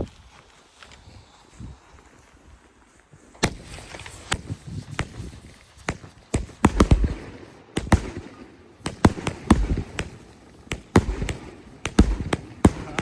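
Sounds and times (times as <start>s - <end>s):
fireworks banging: 3.4s - 13.0s.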